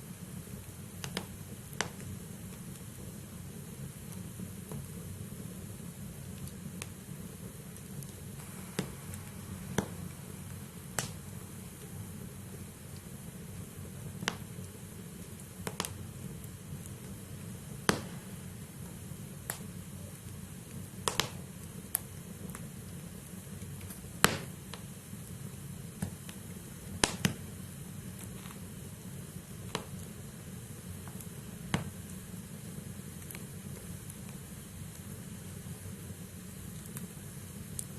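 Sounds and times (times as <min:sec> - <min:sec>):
fire crackles and pops: 0:00.0 - 0:37.9
low fire rumble: 0:00.0 - 0:37.9.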